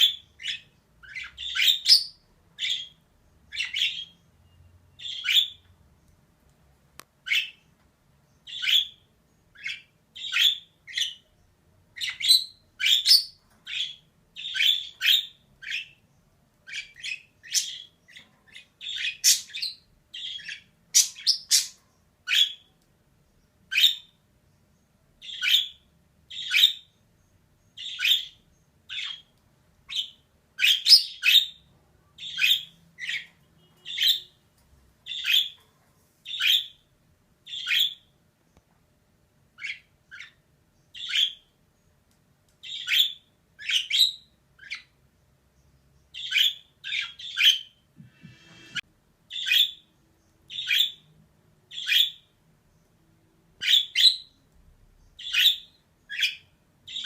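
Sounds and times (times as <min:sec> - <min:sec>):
budgerigar chirping: 0:00.0 - 0:04.2, 0:04.9 - 0:05.7, 0:07.2 - 0:07.6, 0:08.4 - 0:11.3, 0:12.0 - 0:16.0, 0:16.7 - 0:22.7, 0:23.7 - 0:24.2, 0:25.2 - 0:26.9, 0:27.8 - 0:29.3, 0:29.9 - 0:31.6, 0:32.2 - 0:34.4, 0:35.0 - 0:35.6, 0:36.3 - 0:36.8, 0:37.4 - 0:38.1, 0:39.6 - 0:41.5, 0:42.6 - 0:45.0, 0:46.1 - 0:47.8, 0:48.5 - 0:49.9, 0:50.5 - 0:51.1, 0:51.7 - 0:52.3, 0:53.6 - 0:54.4, 0:55.2 - 0:57.0.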